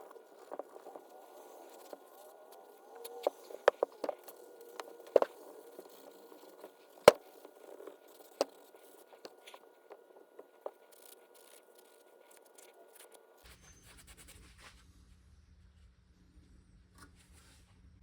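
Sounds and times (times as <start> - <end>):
sharp clicks and knocks: 3.2 - 5.4, 6.4 - 11.5.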